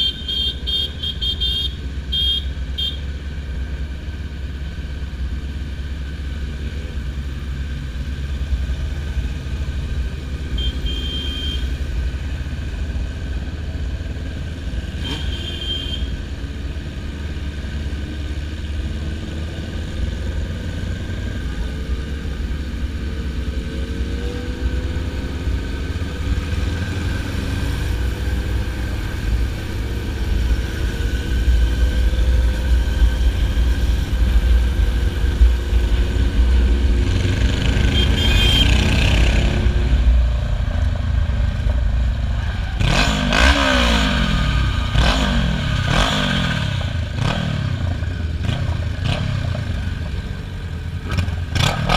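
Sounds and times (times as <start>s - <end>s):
motorcycle engine rumble: 0.0s - 51.9s.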